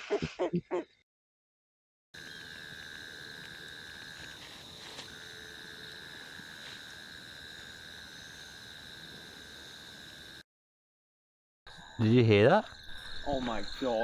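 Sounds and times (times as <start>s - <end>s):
insects and frogs calling: 2.2s - 10.4s, 11.7s - 14.0s.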